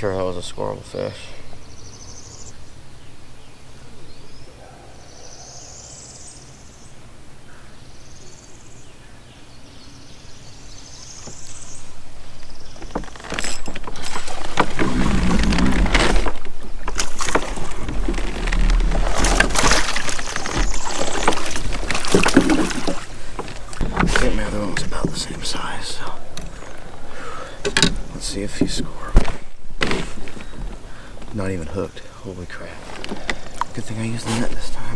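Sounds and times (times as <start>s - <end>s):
loud rustling: 12.7s - 24.8s.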